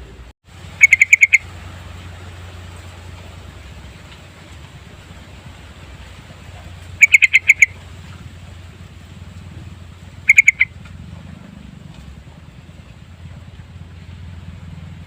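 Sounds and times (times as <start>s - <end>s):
bird calling clear notes: 0.0s - 1.6s, 6.3s - 11.0s.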